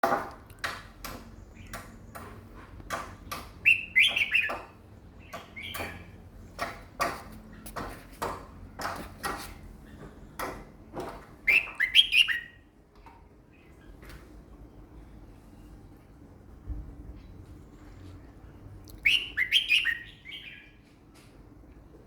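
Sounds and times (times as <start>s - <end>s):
sharp clicks and knocks: 0.0s - 11.4s
bird warbling song: 3.6s - 6.2s, 11.5s - 12.6s, 19.0s - 20.8s.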